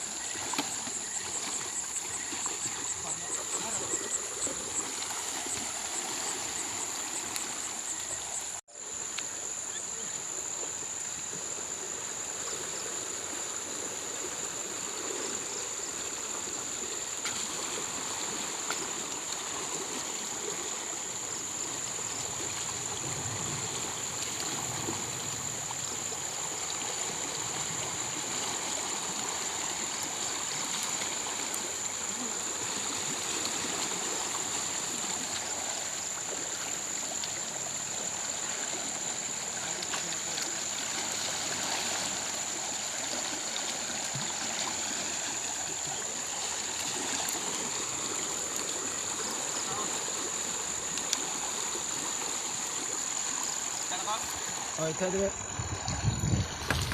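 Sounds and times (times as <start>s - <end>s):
river water rushing: 0.0s - 56.9s.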